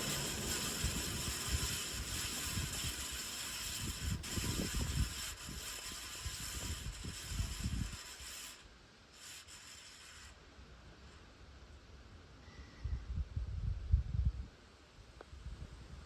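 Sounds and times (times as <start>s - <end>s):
ceiling fan running: 0.0s - 7.9s
bearings hissing and scraping: 0.0s - 10.4s.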